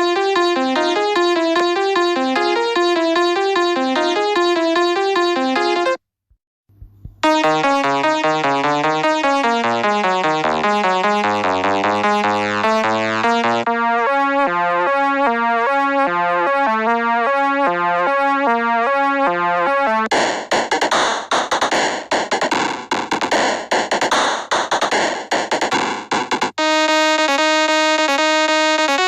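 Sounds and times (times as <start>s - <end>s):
synthesizer music loops: 7.2s - 28.2s.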